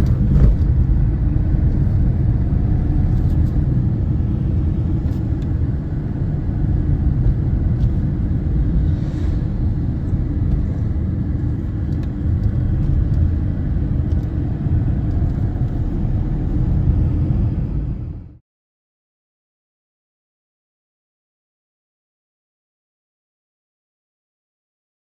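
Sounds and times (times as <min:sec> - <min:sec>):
steady low rumbling: 0:00.0 - 0:18.4.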